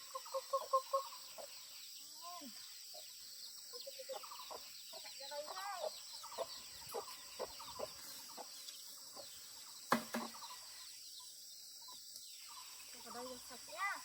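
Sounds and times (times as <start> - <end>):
chickens clucking: 0.0 - 1.8, 2.9 - 11.0.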